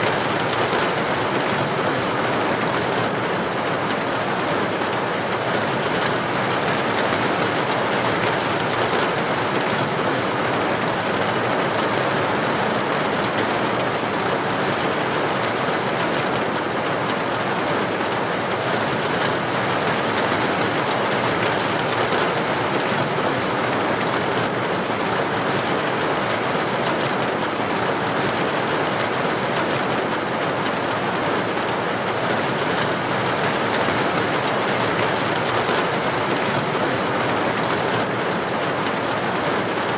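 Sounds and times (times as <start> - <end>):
heavy rain on street: 0.0 - 39.9.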